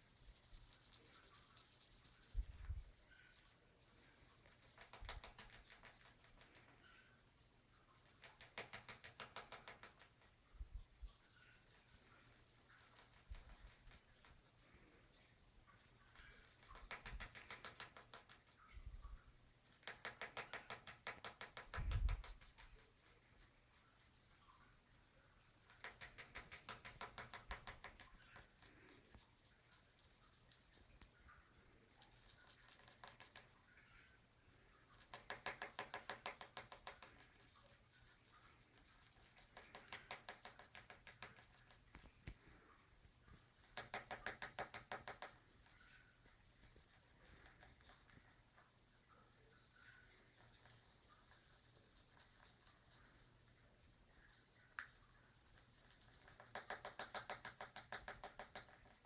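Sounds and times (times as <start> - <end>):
bird beak tapping: 4.1 - 7.2, 8.0 - 10.4, 11.4 - 14.9, 15.7 - 18.7, 19.6 - 24.1, 25.4 - 48.8, 49.6 - 59.0.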